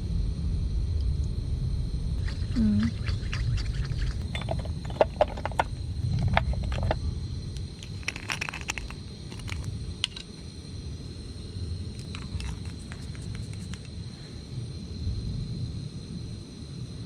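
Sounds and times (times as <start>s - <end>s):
steady low rumble: 0.0s - 17.0s
utensils and dishes clinking: 4.2s - 7.0s.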